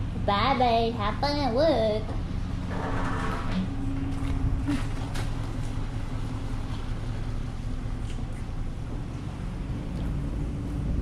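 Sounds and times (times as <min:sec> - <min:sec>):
faint steady hum: 0:00.0 - 0:11.0
vehicle engine rumbling: 0:00.0 - 0:11.0.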